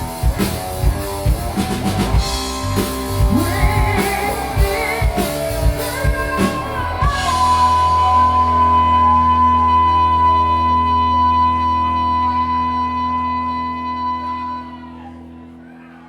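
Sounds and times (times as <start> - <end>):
drums hitting: 0.0 - 8.2
person singing with vibrato: 3.2 - 15.0.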